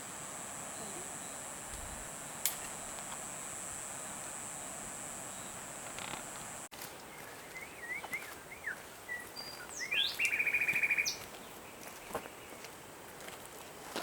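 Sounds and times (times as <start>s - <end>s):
faint steady hiss: 0.0s - 6.7s
songbird singing: 0.0s - 12.7s.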